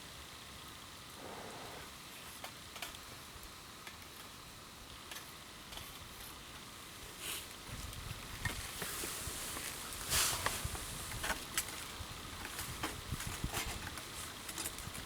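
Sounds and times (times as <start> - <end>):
fire hiss: 1.2 - 1.9, 8.5 - 12.1.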